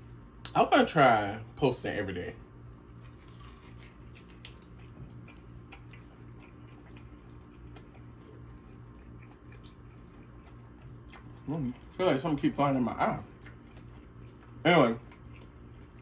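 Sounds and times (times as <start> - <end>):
steady low hum: 0.0 - 16.0
person chewing food: 2.6 - 12.0, 13.2 - 16.0.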